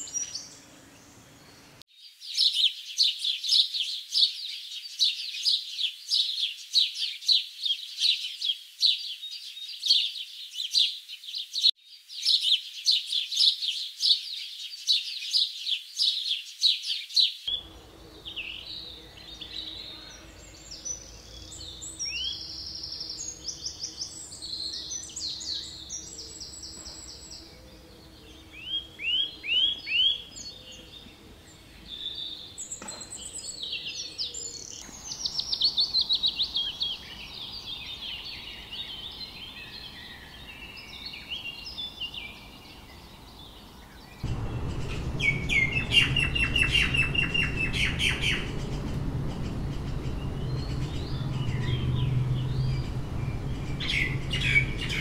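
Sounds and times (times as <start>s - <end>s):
birds chirping rapidly: 0.0s - 55.0s
faint steady hum: 17.5s - 21.9s.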